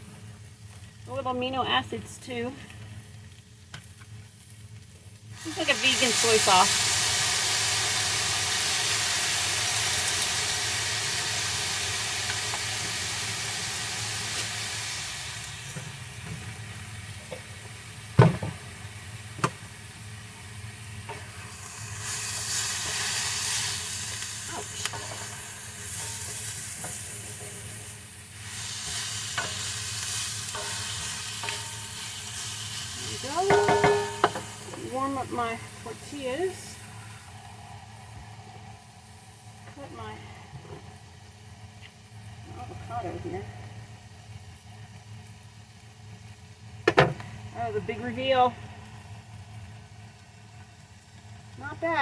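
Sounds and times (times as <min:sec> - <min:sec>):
food sizzling in frying pan: 0:03.1 - 0:40.1, 0:40.8 - 0:52.0
utensil knocking on pan: 0:33.4 - 0:34.5.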